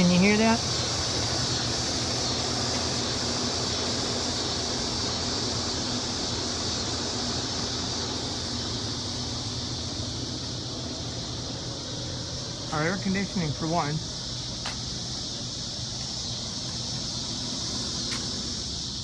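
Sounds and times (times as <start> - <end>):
air conditioning unit humming: 0.0 - 19.0
cicadas and crickets buzzing: 0.0 - 19.0.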